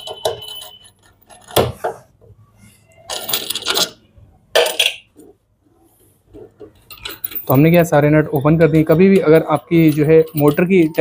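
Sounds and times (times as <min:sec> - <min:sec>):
metal nuts clinking: 0:00.0 - 0:01.7, 0:06.6 - 0:11.0.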